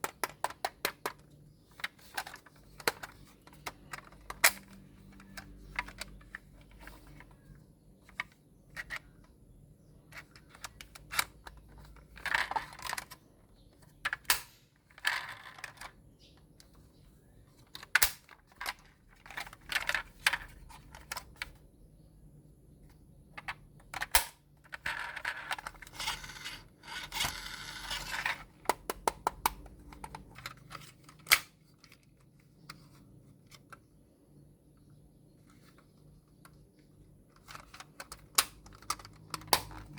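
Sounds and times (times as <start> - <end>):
plastic pieces clicking: 0.0 - 7.3, 23.4 - 32.8, 36.3 - 39.9.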